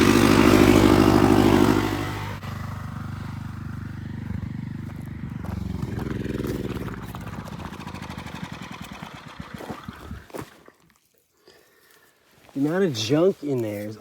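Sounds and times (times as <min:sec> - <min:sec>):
rototiller engine running: 0:00.0 - 0:10.6.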